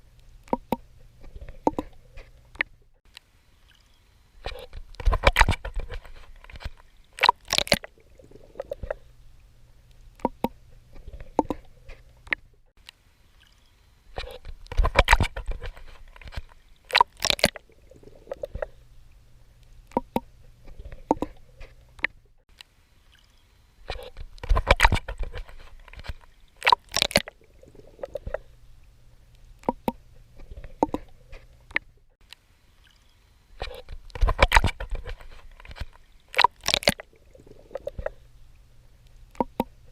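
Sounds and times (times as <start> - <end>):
steady low hum: 0.0 - 3.0, 7.9 - 13.2, 17.6 - 22.4, 27.3 - 32.6, 37.0 - 39.9
water gurgling: 4.4 - 12.3, 14.1 - 22.1, 23.8 - 29.0, 29.6 - 31.8, 32.6 - 39.9.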